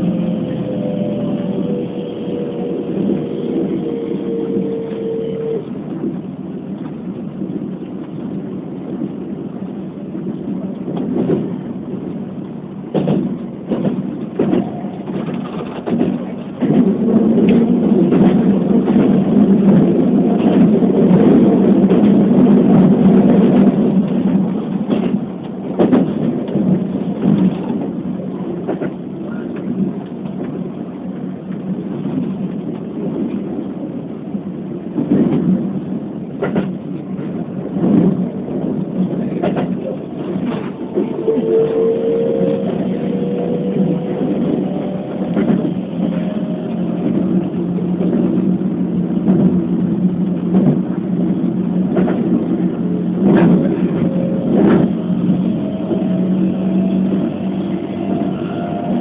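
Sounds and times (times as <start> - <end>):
train wheels rumbling on rail: 0.0 - 59.0
wheels clacking over rail joints: 12.4 - 30.7, 34.8 - 59.0.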